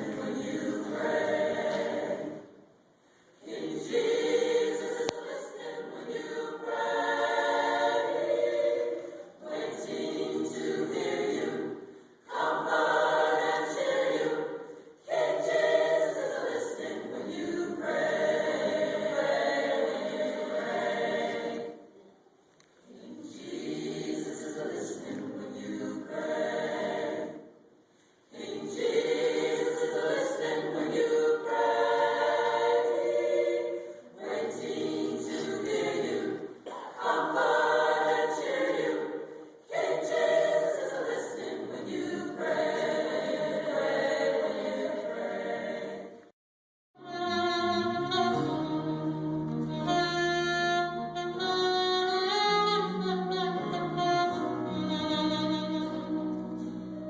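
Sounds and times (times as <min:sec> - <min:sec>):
choir singing: 0:00.0 - 0:46.3, 0:47.0 - 0:57.0
instrumental accompaniment: 0:47.0 - 0:57.0.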